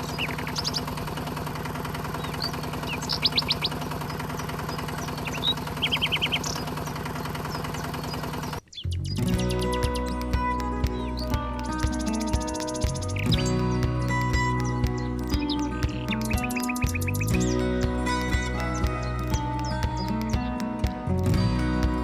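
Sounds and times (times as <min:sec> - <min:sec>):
small motor humming: 0:00.0 - 0:08.6
bird chirping: 0:00.0 - 0:21.0
music: 0:08.8 - 0:22.0.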